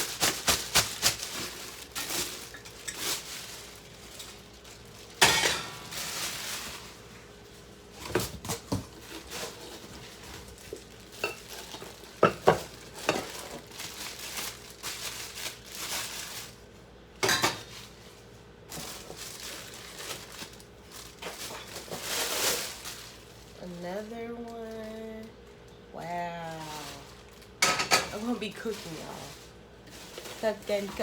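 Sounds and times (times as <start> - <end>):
pots and pans clanking: 5.1 - 6.4, 11.2 - 13.7, 17.2 - 17.8, 27.6 - 28.3.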